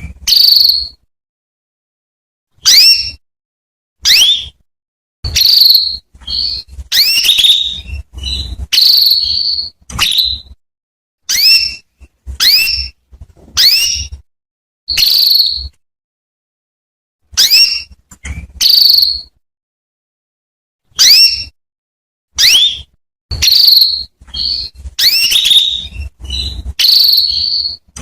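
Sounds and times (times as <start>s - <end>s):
canary calling: 0.1s - 1.0s, 2.6s - 3.2s, 4.0s - 4.6s, 5.3s - 10.6s, 11.3s - 13.0s, 13.6s - 14.2s, 17.4s - 19.3s, 21.0s - 21.6s, 22.4s - 28.0s.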